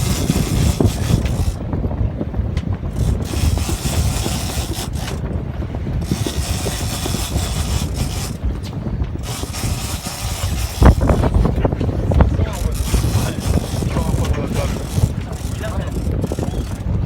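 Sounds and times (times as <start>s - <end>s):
fishing reel ratcheting: 0.0s - 1.6s, 2.9s - 5.2s, 6.0s - 8.4s, 9.2s - 11.5s, 12.5s - 16.8s
steady low rumble: 0.0s - 17.0s.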